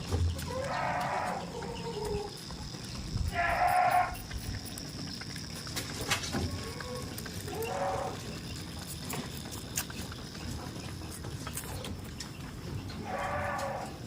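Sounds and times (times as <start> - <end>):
goat bleating: 0.5 - 2.3, 3.1 - 4.3, 6.4 - 8.4, 13.0 - 14.0.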